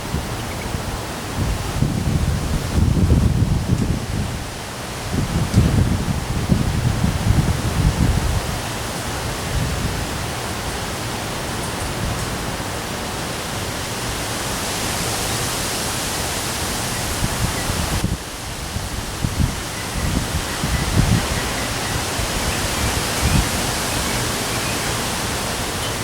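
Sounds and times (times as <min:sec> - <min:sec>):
wind buffeting microphone: 0:00.0 - 0:10.5, 0:16.3 - 0:26.0
storm rain: 0:00.0 - 0:26.0.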